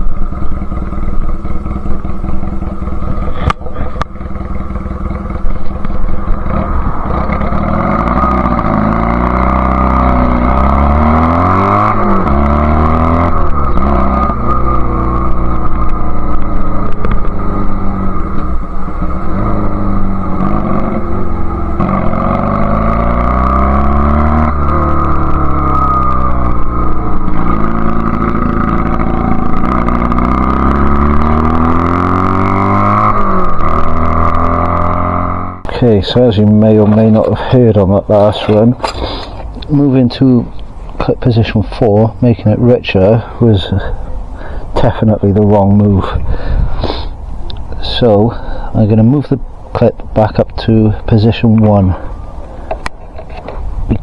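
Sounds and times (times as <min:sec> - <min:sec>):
motorcycle engine revving: 0:00.0 - 0:40.6.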